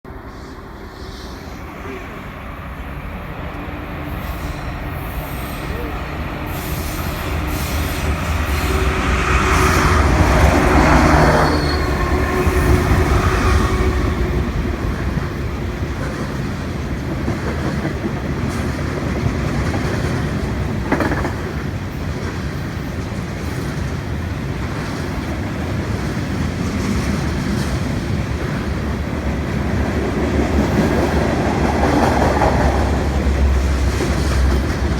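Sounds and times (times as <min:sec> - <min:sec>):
rumble of train cars: 0:00.0 - 0:34.9
diesel locomotive engine drone: 0:00.1 - 0:34.9
wheel squeal: 0:10.9 - 0:12.8
wheels clickety-clack: 0:15.8 - 0:34.9.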